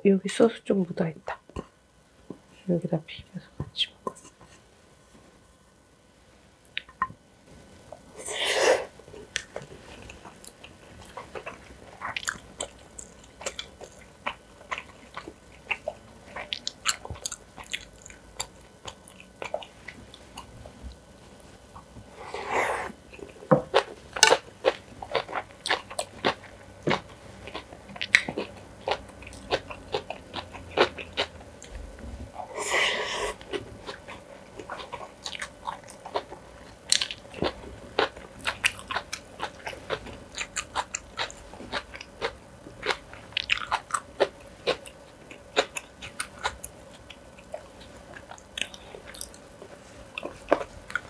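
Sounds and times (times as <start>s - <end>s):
chewing and crunching food: 9.2s - 20.8s, 23.0s - 31.7s, 33.3s - 51.0s.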